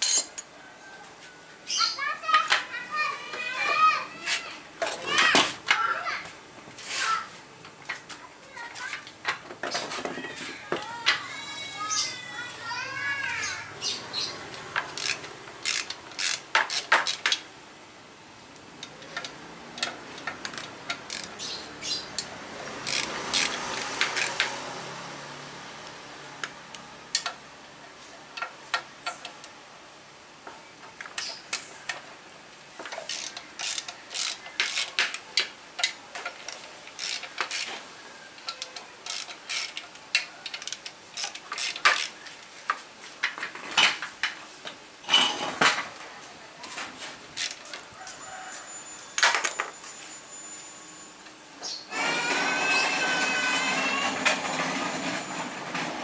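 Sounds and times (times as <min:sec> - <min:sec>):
metal tools clinking: 0:00.0 - 0:00.5, 0:48.7 - 0:51.2
ratchet wrench clicking: 0:14.8 - 0:17.4, 0:18.9 - 0:21.4, 0:22.2 - 0:24.5, 0:33.1 - 0:37.7, 0:38.4 - 0:42.2, 0:47.4 - 0:47.6.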